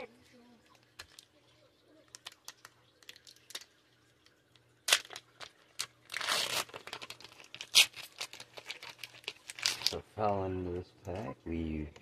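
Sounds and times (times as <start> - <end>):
foil pack crinkling: 0.7 - 1.4, 2.0 - 10.1
foil pack tearing: 4.8 - 10.0.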